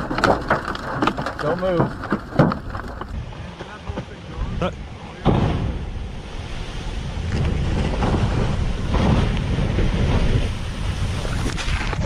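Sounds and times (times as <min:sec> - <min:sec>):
wind buffeting microphone: 0:00.0 - 0:12.0
waves crashing: 0:05.1 - 0:12.0.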